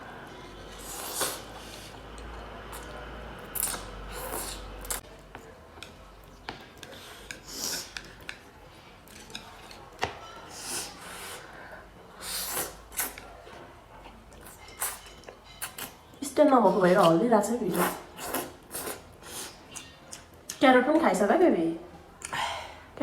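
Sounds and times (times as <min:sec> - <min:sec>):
slurping noodles: 0:00.4 - 0:02.0, 0:03.6 - 0:05.0, 0:12.2 - 0:13.2, 0:17.7 - 0:19.6.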